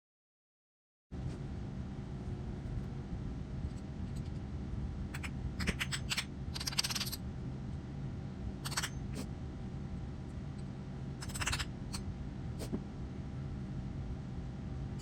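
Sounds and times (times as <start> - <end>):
steady low hum: 1.1 - 15.0.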